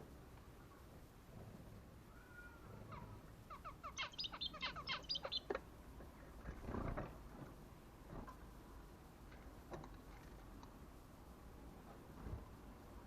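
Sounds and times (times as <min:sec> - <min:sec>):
canary rattling trill: 0:03.8 - 0:05.5.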